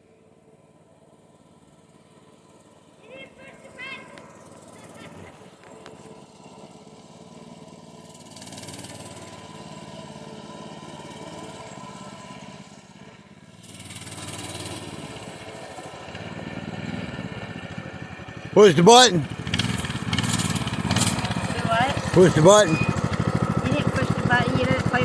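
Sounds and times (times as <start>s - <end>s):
lawnmower engine running: 1.5s - 25.0s.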